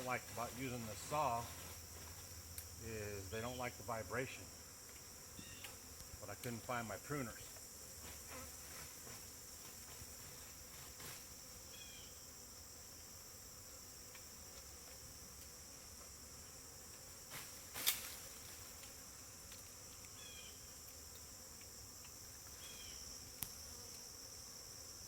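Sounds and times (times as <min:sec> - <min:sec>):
bee swarm buzzing: 0:00.0 - 0:25.0
small click: 0:23.4 - 0:24.1.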